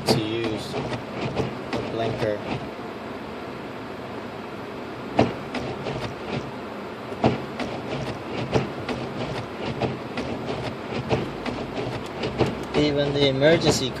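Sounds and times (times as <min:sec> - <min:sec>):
road and tyre noise in car: 0:00.0 - 0:14.0
sharp knock: 0:05.2 - 0:06.4, 0:07.2 - 0:13.0.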